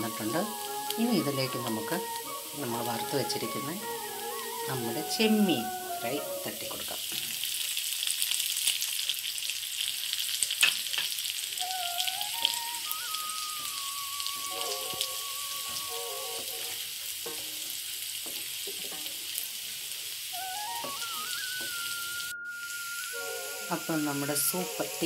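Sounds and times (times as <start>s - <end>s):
oil sizzling in frying pan: 0.0s - 25.0s
spatula scraping a pan: 16.6s - 19.5s.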